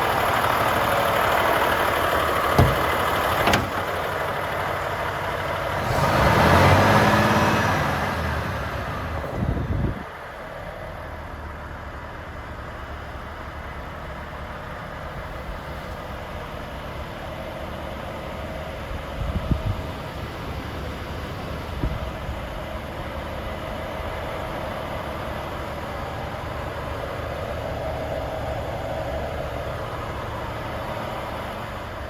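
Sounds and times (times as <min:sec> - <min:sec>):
truck diesel engine idling: 0:00.0 - 0:32.0
short knock: 0:02.6 - 0:03.7.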